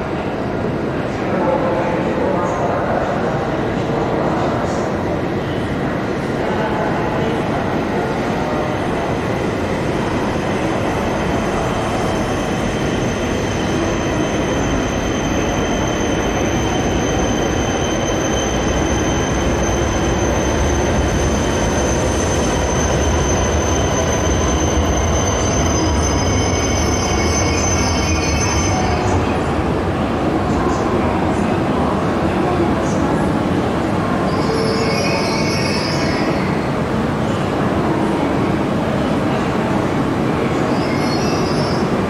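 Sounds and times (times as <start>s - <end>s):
train high-pitched whine: 10.2s - 29.2s.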